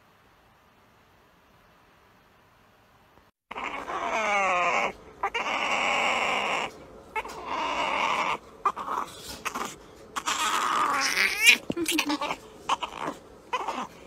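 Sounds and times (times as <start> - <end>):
puppy grumbling raspily: 3.5 - 14.0
puppy whining: 3.5 - 14.0.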